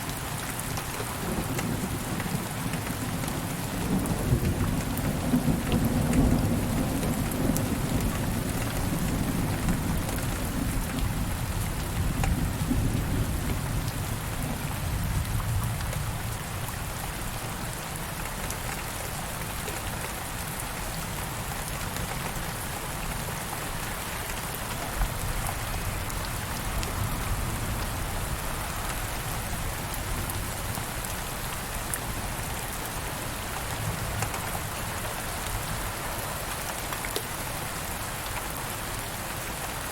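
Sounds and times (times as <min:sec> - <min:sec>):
steady rain falling: 0:00.0 - 0:39.9
low rumble of thunder: 0:01.1 - 0:17.4.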